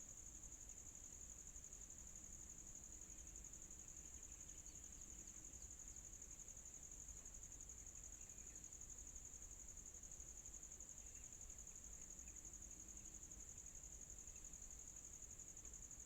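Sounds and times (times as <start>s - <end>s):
insects trilling: 0.1s - 16.0s.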